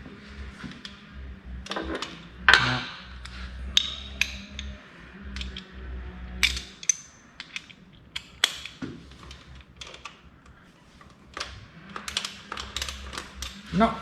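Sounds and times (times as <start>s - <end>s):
low hum: 0.0s - 14.0s
steel tools clinking: 0.2s - 10.2s, 11.3s - 14.0s
ratchet clicking on a bolt: 1.6s - 10.2s, 11.4s - 13.8s.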